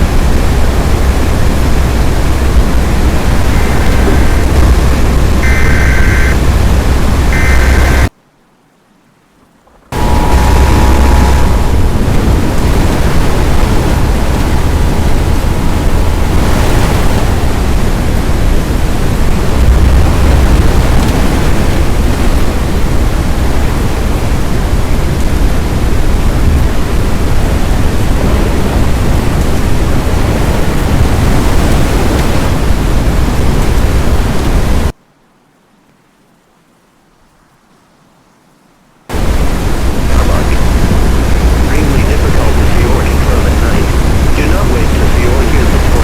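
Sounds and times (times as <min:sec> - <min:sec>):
strong wind rushing: 0:00.0 - 0:08.1, 0:09.8 - 0:35.0, 0:39.1 - 0:46.0.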